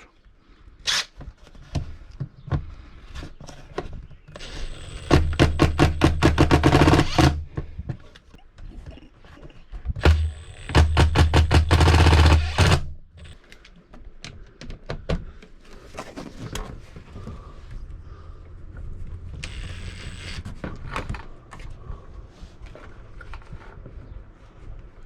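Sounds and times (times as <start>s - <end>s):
impact driver hammering: 4.4s - 7.6s, 10.0s - 13.4s.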